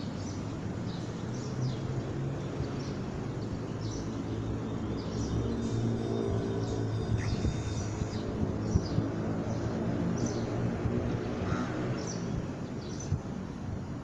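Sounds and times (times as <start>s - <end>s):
small birds chirping: 0.0s - 10.7s.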